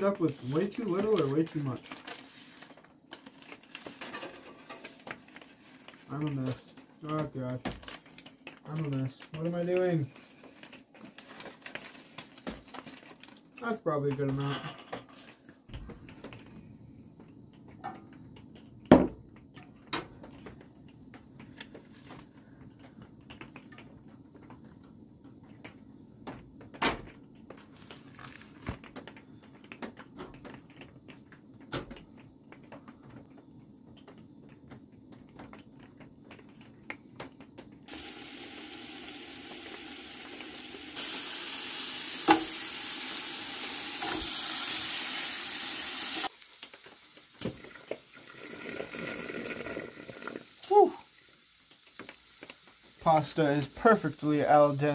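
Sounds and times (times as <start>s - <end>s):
food sizzling in a pan: 37.9s - 54.9s
pots and pans clicking and knocking: 42.2s - 42.7s.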